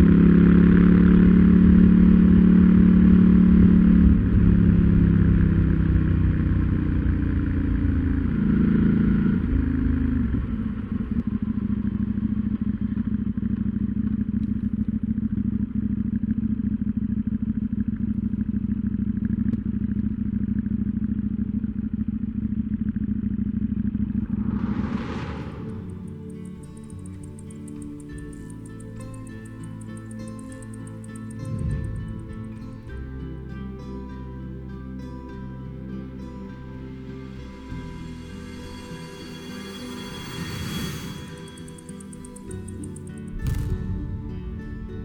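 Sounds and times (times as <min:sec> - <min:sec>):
motorcycle engine idling: 0:00.0 - 0:24.2
motorcycle engine decelerating: 0:00.0 - 0:33.1.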